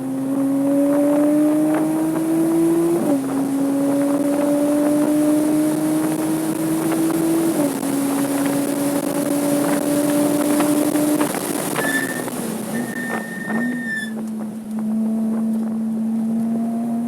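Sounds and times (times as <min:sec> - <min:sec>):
car engine accelerating: 0:00.0 - 0:17.0
wind noise: 0:00.3 - 0:16.0
tyre squeals: 0:11.7 - 0:14.3.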